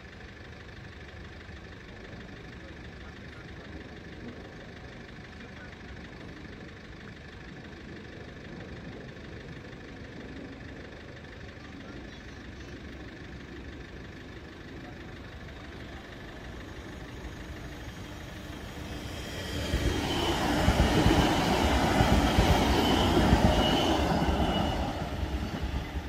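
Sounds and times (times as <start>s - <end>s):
train passing: 12.8s - 26.0s.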